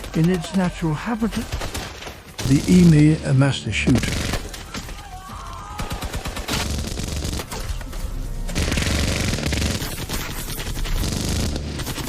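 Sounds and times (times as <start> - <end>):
background music: 2.4 - 12.0
rapid machine-gun fire: 5.8 - 7.6, 8.6 - 12.0.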